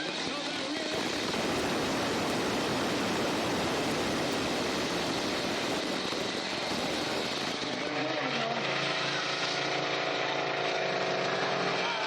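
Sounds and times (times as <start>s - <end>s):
monster truck engine roaring: 5.2s - 12.0s.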